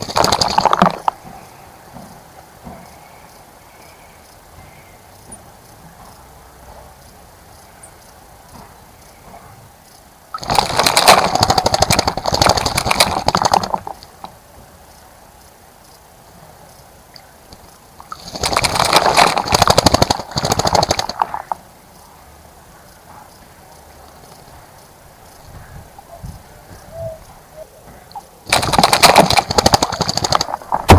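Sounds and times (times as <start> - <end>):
bird splashing in water: 0.0 - 1.2, 10.4 - 14.3, 17.5 - 21.6, 28.4 - 30.9.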